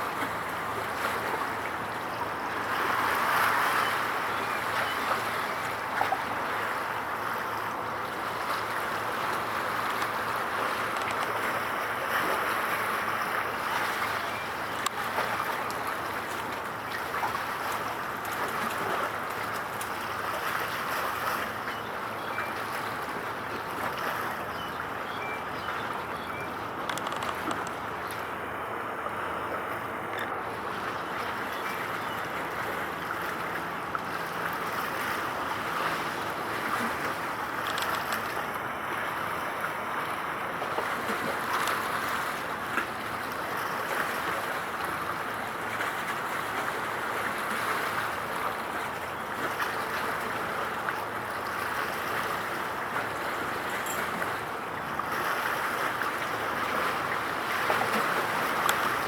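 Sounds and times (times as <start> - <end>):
water rushing at shore: 0.0 - 59.0
wind: 0.0 - 59.0.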